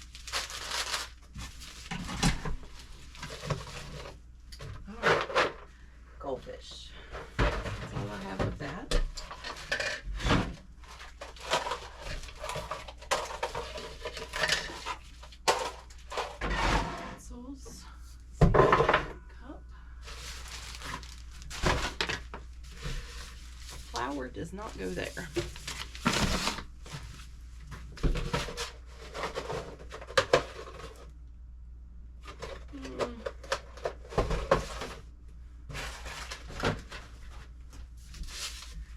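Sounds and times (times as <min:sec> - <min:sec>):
food packages rustling: 0:00.0 - 0:04.2, 0:09.2 - 0:16.4, 0:20.0 - 0:31.2, 0:35.7 - 0:38.9.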